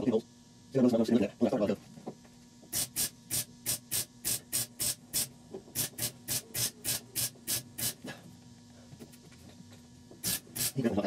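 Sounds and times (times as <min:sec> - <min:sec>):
crackling welding bursts: 0:02.8 - 0:08.0, 0:10.2 - 0:10.9.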